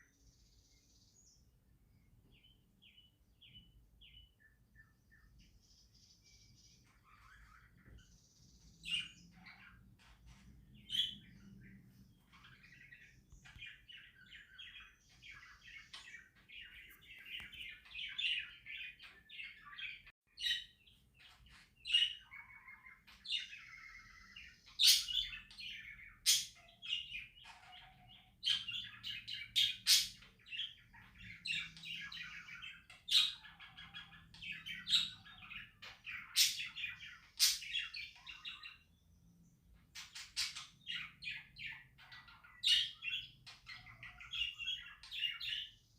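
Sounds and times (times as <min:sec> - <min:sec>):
budgerigars chattering: 0:08.9 - 0:38.8.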